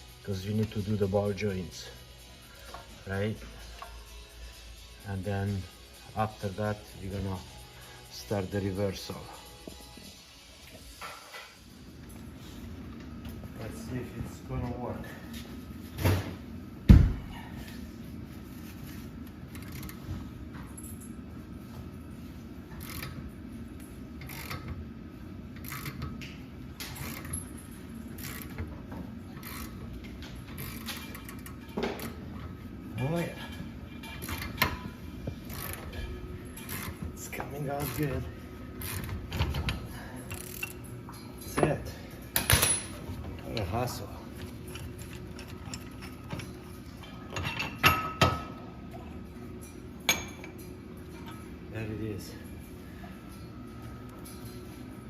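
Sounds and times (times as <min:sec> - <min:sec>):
steady low hum: 0:00.0 - 0:55.0
hand ratchet clicking: 0:19.5 - 0:20.0, 0:22.8 - 0:23.2, 0:24.2 - 0:24.8, 0:25.6 - 0:27.4, 0:28.2 - 0:28.6, 0:29.4 - 0:32.1, 0:35.5 - 0:37.0, 0:38.8 - 0:39.5.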